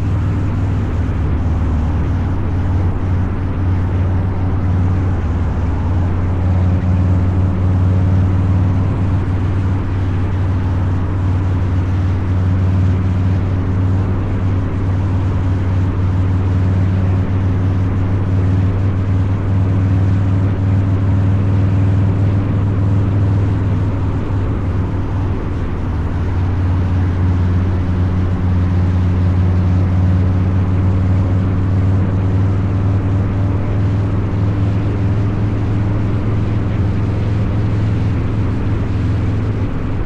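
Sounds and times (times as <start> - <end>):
motorcycle engine cruising: 0.0 - 40.0.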